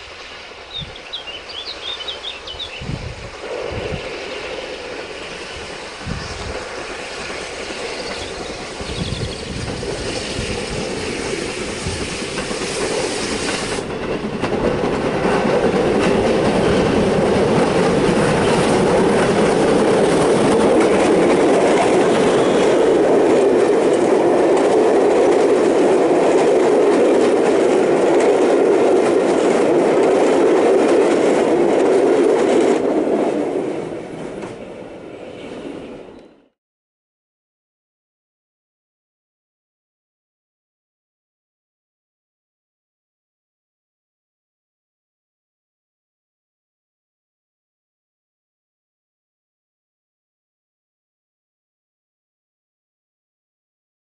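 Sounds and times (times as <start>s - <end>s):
train passing close by: 0.0s - 36.6s.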